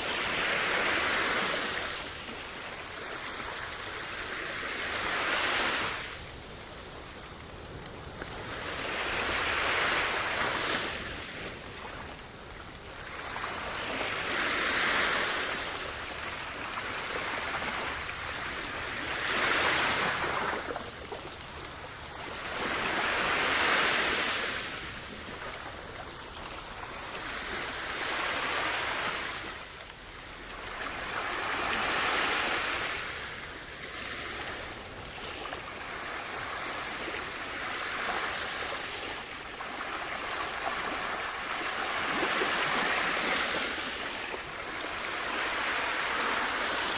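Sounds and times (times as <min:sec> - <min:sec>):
sea waves washing ashore: 0:00.0 - 0:46.9.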